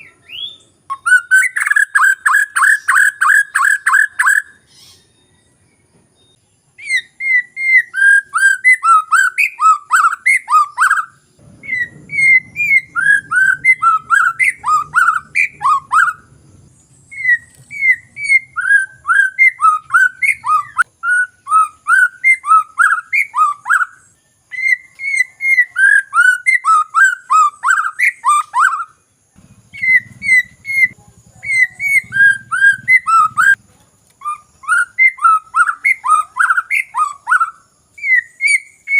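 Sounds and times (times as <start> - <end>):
bird singing whistled notes: 0.0 - 33.6, 34.2 - 38.9
faint low rumble: 11.3 - 20.9, 29.4 - 33.8.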